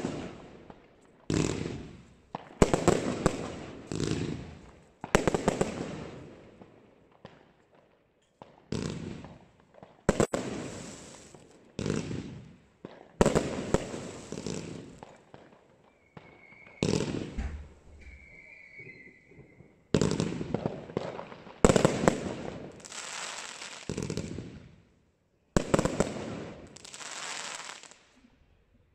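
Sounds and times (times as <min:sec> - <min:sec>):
firework crackle and hiss: 0:10.1 - 0:24.7, 0:25.6 - 0:28.2
firework bangs: 0:16.0 - 0:24.6.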